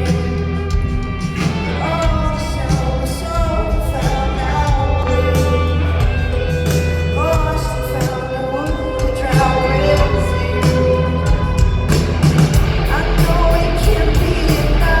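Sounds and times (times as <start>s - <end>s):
heavy bass: 0.0s - 15.0s
rock band playing: 0.0s - 15.0s.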